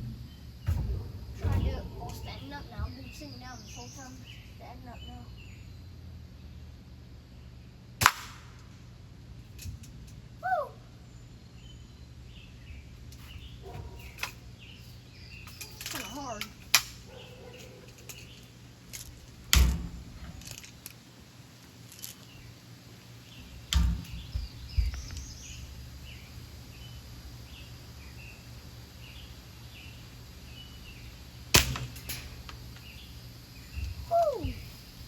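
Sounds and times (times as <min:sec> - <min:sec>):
bb gun cracks: 0:08.0 - 0:08.9, 0:15.5 - 0:17.1, 0:31.5 - 0:32.8
small clicks: 0:17.6 - 0:21.0.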